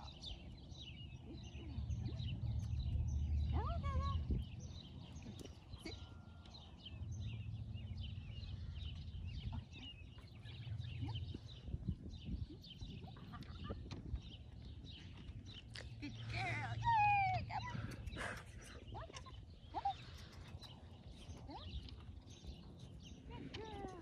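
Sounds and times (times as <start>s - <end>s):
small birds chirping: 0.0s - 24.0s
low rumble: 1.6s - 5.5s, 6.4s - 18.2s.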